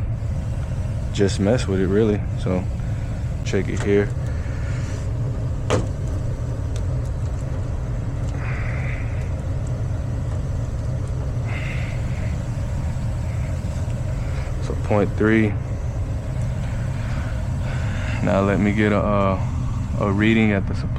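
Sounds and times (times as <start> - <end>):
furnace blower rumbling: 0.0 - 20.9
soft hisses: 11.4 - 20.7.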